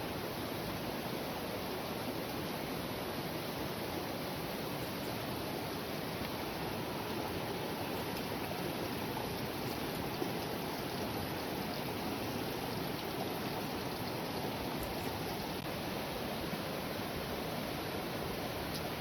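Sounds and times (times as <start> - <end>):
heavy rain pouring: 5.2 - 19.0.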